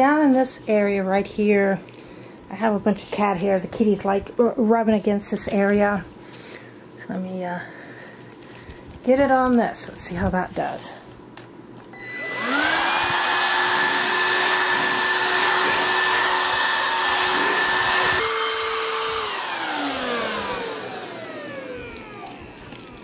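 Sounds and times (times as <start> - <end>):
stick vacuum running: 12.0 - 23.0
vacuum motor winding down: 12.0 - 23.0.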